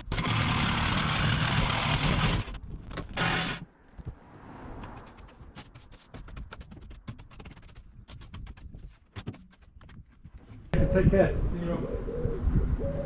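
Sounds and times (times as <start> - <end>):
power saw cutting steel: 0.0 - 2.5, 3.1 - 3.7.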